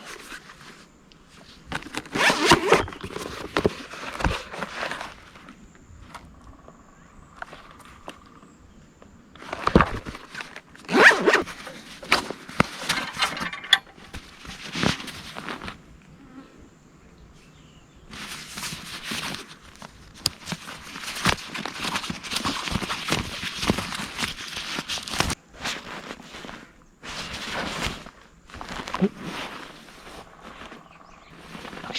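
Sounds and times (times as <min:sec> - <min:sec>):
zippers being pulled: 0:02.0 - 0:03.4, 0:10.9 - 0:14.2
bag fabric rustling: 0:10.9 - 0:15.6.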